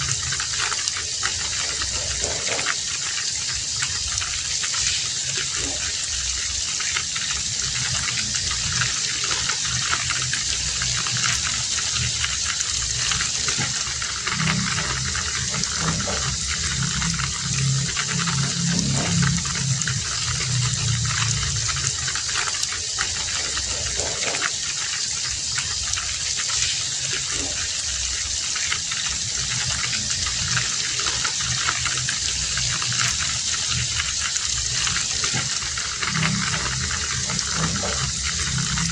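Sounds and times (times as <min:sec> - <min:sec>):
heavy rain: 0:00.0 - 0:38.9
low rumble: 0:10.0 - 0:22.3.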